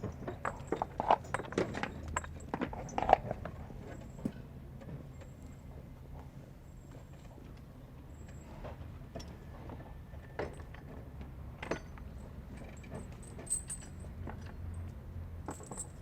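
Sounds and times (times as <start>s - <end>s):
metallic clinks and jingles: 0.0s - 4.3s, 11.6s - 16.0s.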